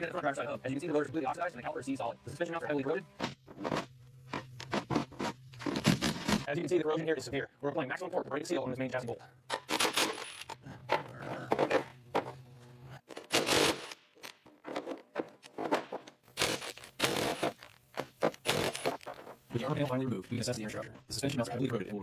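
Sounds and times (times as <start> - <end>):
metal tools clinking and scraping: 9.5 - 10.6.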